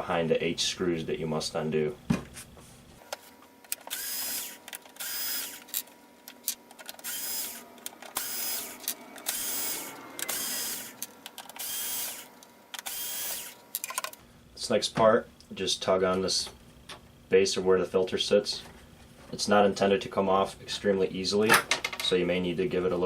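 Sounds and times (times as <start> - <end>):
electric screwdriver whirring: 3.7 - 13.8.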